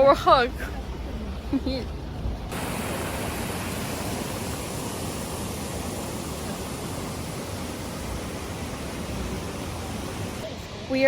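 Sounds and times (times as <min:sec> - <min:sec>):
waterfall roaring: 0:02.5 - 0:10.9.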